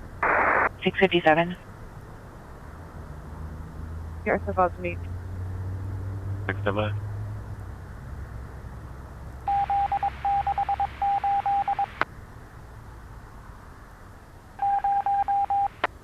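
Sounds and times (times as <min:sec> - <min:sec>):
radio click: 0:00.2 - 0:00.7
electronic radio beep tone: 0:09.5 - 0:12.0, 0:14.6 - 0:15.8.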